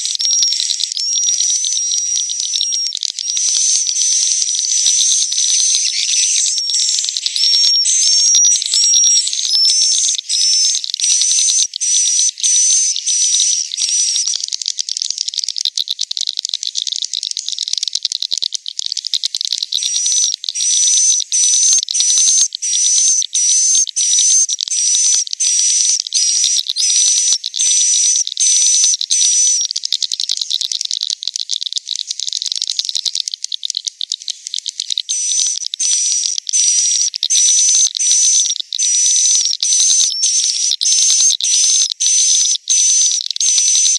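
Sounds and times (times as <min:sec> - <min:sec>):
sharp repeated bird chirps: 0:00.0 - 0:14.4, 0:19.8 - 0:29.7, 0:35.0 - 0:43.9
birds twittering: 0:35.1 - 0:43.1.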